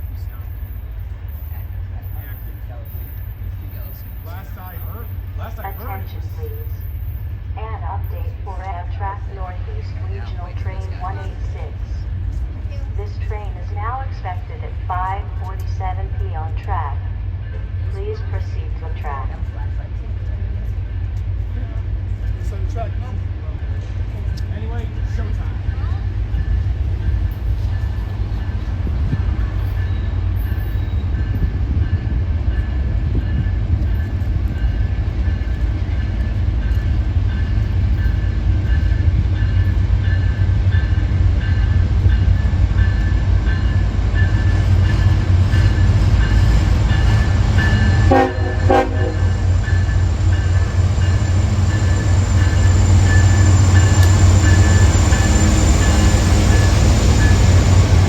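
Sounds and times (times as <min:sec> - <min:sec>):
train rumbling past: 0:00.0 - 0:58.0.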